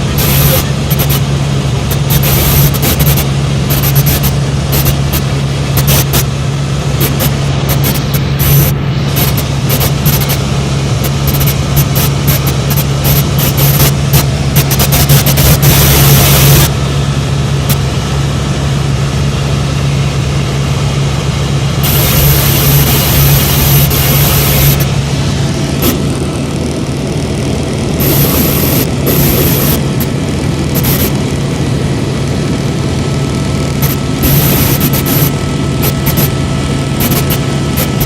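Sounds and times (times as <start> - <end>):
helicopter rotor and engine drone: 0.0 - 38.0.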